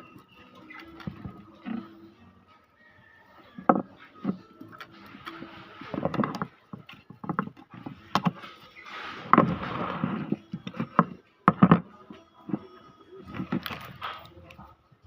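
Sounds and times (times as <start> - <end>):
knocks and clicks: 3.6 - 8.6, 9.2 - 11.9
rustling scrape: 4.9 - 11.2.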